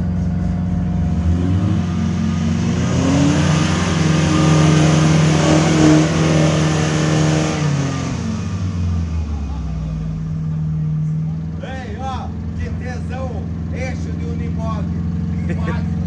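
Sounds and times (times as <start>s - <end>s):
engine revving hard: 0.0s - 11.1s.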